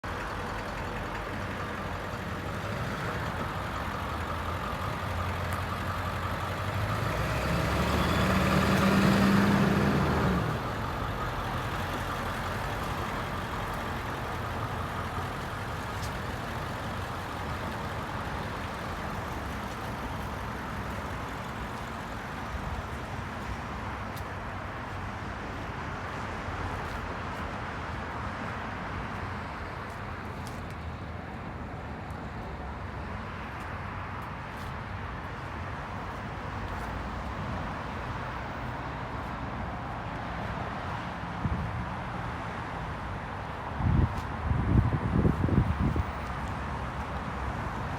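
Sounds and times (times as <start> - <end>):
truck engine revving: 6.2 - 10.9.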